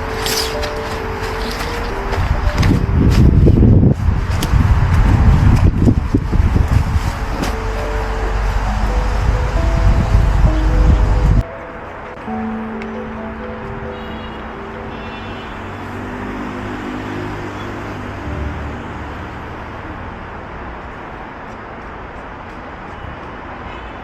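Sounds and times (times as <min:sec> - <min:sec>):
held musical tones: 0:00.0 - 0:16.6
road traffic noise: 0:00.0 - 0:24.0.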